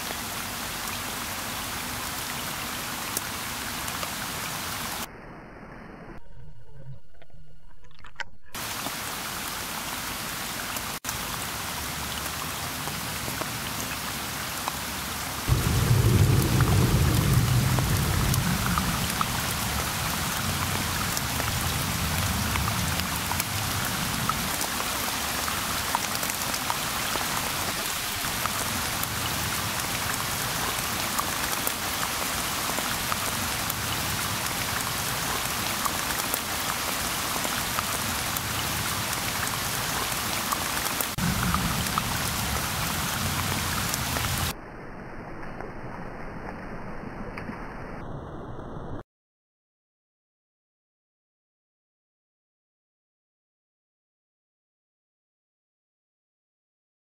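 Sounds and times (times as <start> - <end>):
rain falling on river: 0.0 - 5.1, 8.6 - 44.6
thunder rumble: 15.5 - 25.7, 41.1 - 44.6.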